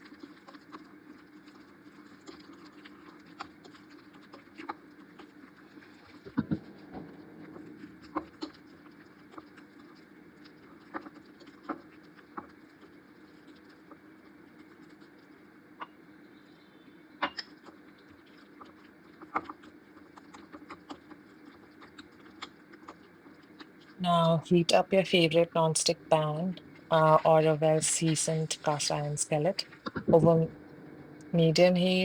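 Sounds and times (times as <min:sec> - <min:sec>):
steady low hum: 0:05.8 - 0:09.3, 0:24.0 - 0:32.0.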